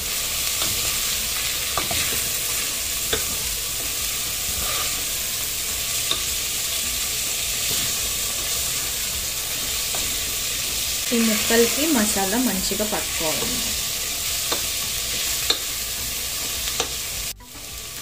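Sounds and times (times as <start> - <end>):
vegetables sizzling in hot oil: 0.0 - 18.0
wooden spatula scraping a pot: 4.4 - 5.2
spatula clicking against pot: 14.5 - 14.7, 15.4 - 15.7.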